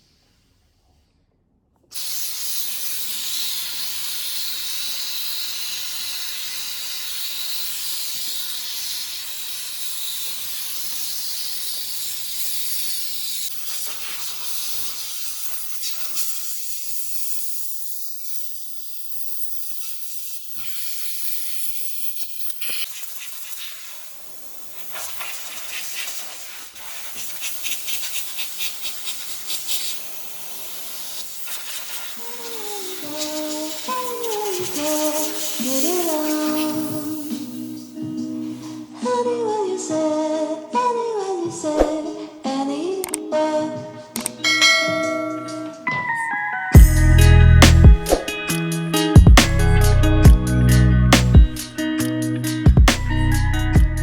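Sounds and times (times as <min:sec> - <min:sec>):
hissing spray from nozzle: 0:02.0 - 0:38.8.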